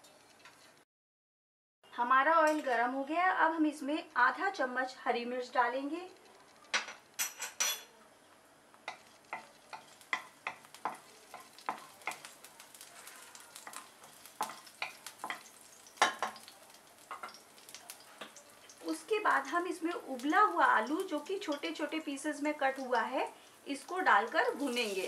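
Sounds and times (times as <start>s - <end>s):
chillies crackling in hot oil: 8.2s - 25.0s
wooden spatula stirring in pan: 8.8s - 19.5s.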